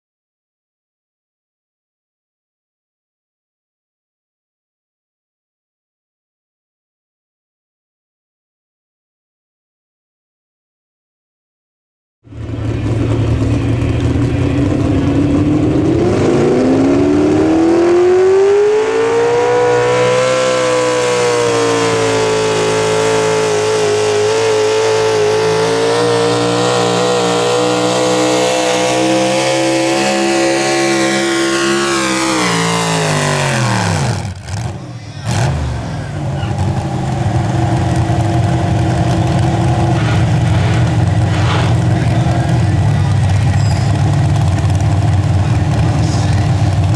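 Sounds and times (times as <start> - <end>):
pulling vehicle engine revving: 12.3 - 46.9.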